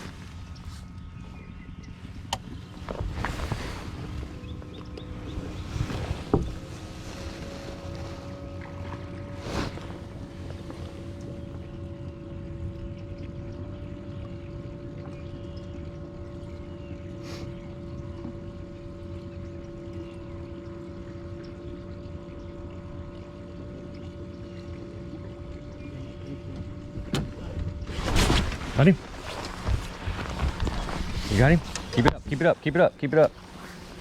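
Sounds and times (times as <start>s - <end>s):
electric boat motor humming: 0.0s - 34.0s
wind and water rumble: 0.0s - 34.0s.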